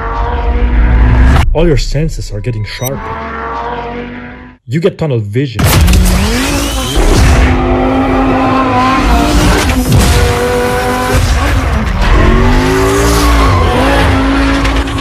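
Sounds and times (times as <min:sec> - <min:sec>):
sports car engine revving: 0:05.8 - 0:15.0.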